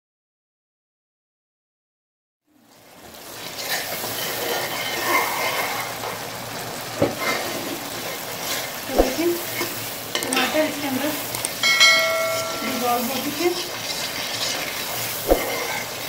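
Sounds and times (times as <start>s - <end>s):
masala sizzling in hot oil: 2.4s - 16.0s
metal spoon knocking pot: 11.6s - 13.0s.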